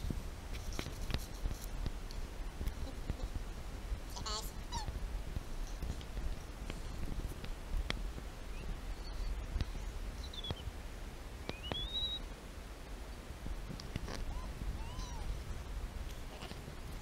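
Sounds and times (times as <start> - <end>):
low steady rumble: 0.0 - 17.0
bird chirps: 10.2 - 10.7, 11.4 - 12.2.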